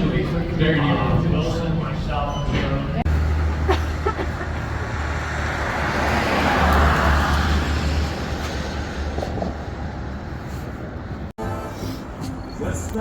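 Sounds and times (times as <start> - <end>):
low traffic rumble: 0.0 - 13.0
vehicle passing: 2.8 - 12.9.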